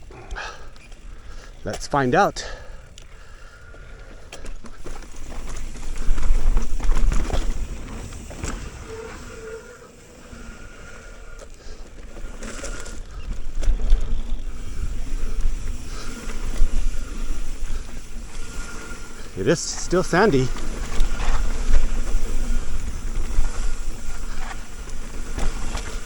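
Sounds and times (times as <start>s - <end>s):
bike rattling over bumps: 0.0s - 26.0s
bike tyres crunching over dirt: 0.0s - 26.0s
wind buffeting microphone: 13.0s - 26.0s.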